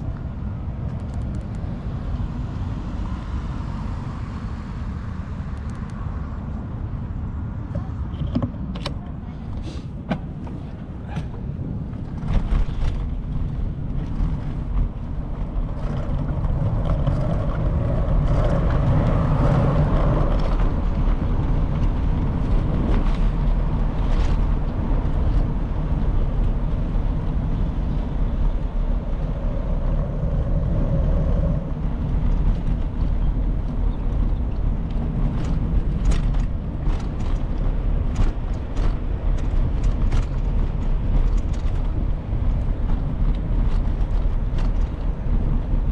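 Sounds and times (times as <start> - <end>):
road traffic passing: 0.0 - 45.9
wind rumbling on microphone: 0.0 - 45.9
sharp clicks and rattles: 32.0 - 45.9.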